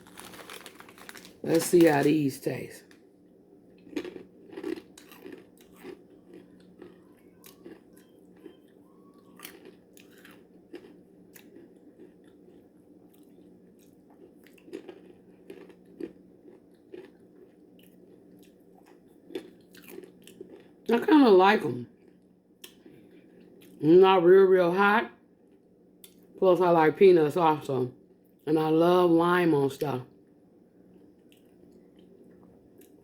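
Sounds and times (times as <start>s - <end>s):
person crunching peanuts: 0.0s - 3.0s, 3.8s - 20.8s
quiet chewing: 3.7s - 20.8s, 22.0s - 23.8s, 30.9s - 33.0s.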